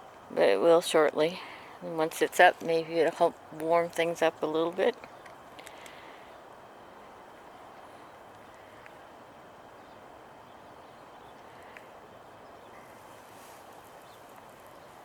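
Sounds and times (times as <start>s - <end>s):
faint steady hiss: 0.0s - 15.0s
faint high ticks: 11.5s - 11.9s.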